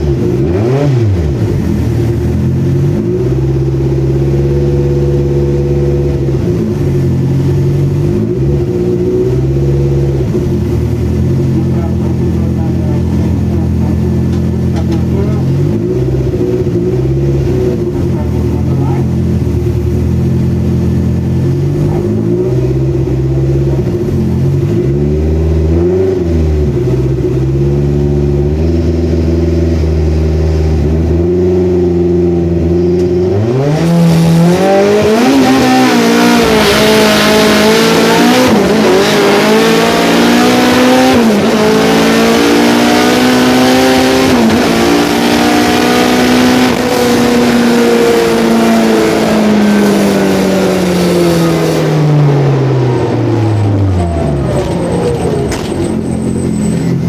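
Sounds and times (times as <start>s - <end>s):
car engine revving and accelerating: 0.0s - 57.0s.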